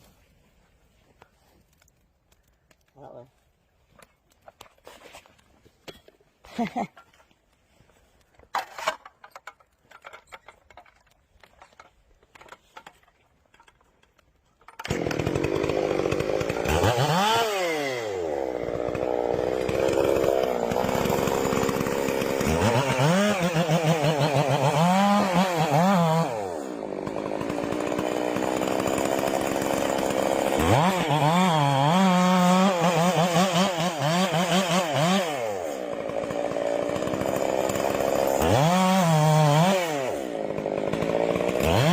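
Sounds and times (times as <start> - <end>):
chainsaw cutting wood: 4.0 - 41.9.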